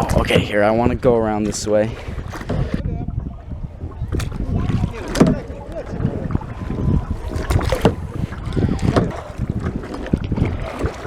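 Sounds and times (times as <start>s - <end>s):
paddle splashing in water: 0.0s - 11.0s
wind buffeting microphone: 0.0s - 11.0s.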